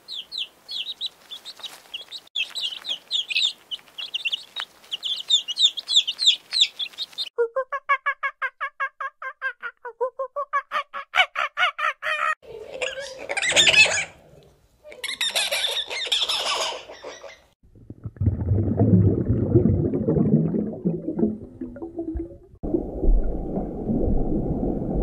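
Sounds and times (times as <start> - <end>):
chicks cheeping: 0.0 - 7.3.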